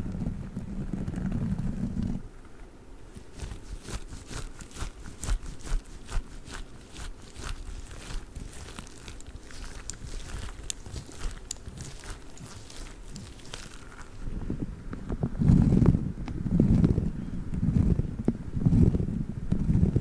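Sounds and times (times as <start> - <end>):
fingers rubbing squishy toy: 3.1 - 14.3, 15.3 - 20.0
crisp crinkly clicks: 3.1 - 15.2.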